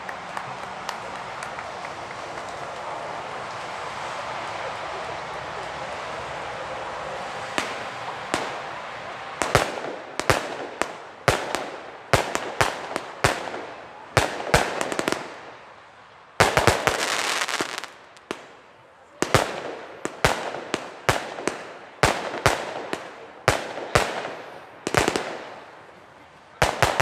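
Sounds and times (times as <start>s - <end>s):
firework bangs and crackling: 0.0s - 27.0s
firework hiss: 16.4s - 18.5s.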